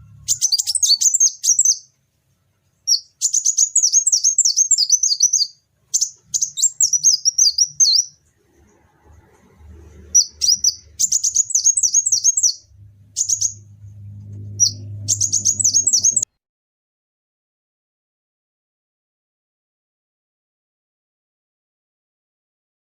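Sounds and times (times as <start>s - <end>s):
low hum: 0.0s - 1.4s, 8.0s - 16.3s
songbird chirping: 0.0s - 16.3s.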